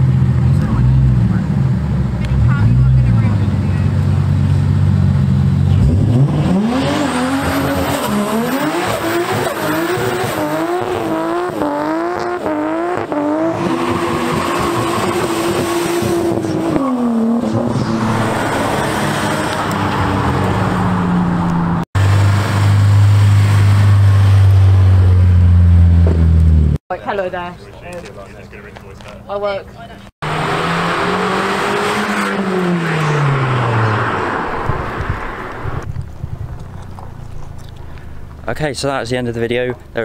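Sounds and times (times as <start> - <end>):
car engine deep drone: 0.0 - 26.8
car engine revving hard: 4.7 - 26.8, 30.2 - 35.8.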